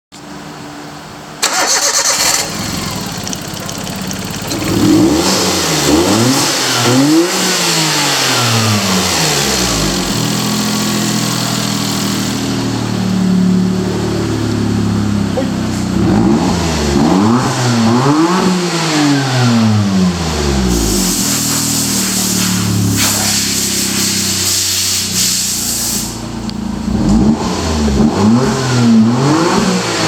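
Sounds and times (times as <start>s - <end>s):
car engine revving and idling: 0.4s - 30.0s
starter motor cranking: 1.4s - 5.8s.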